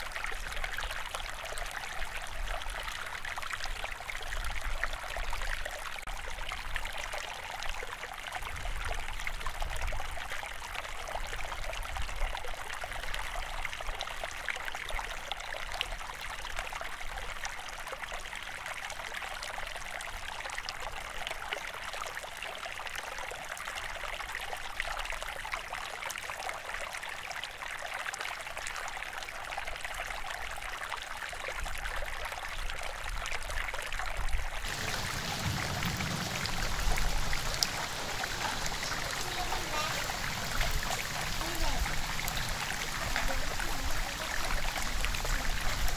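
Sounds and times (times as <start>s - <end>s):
running water: 28.4s - 45.9s.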